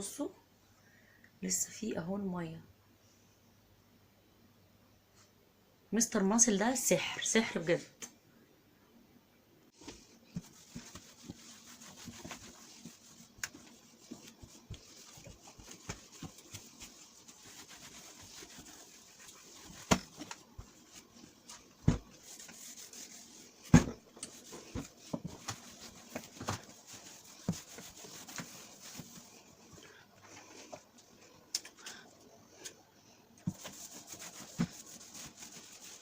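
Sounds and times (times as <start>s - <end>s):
cloth wiping surfaces: 9.7s - 29.8s, 33.4s - 36.0s.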